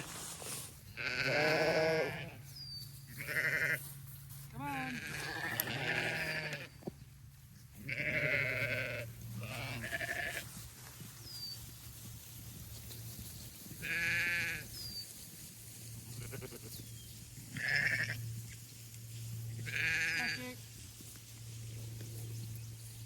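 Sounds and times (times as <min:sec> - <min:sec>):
sheep bleating: 0:01.0 - 0:02.4, 0:03.1 - 0:03.9, 0:04.6 - 0:06.7, 0:07.8 - 0:10.5, 0:13.8 - 0:14.7, 0:16.2 - 0:16.8, 0:17.6 - 0:18.2, 0:19.6 - 0:20.6.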